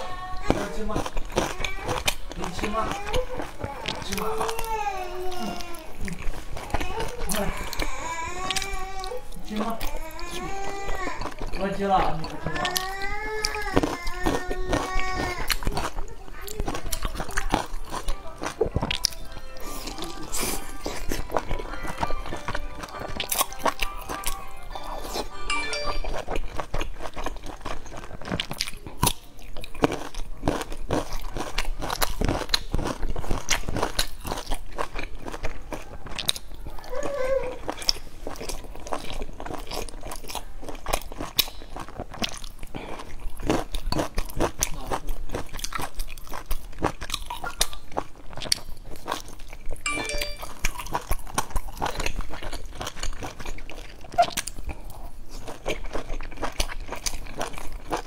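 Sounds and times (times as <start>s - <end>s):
person chewing dumplings: 0.0s - 58.0s.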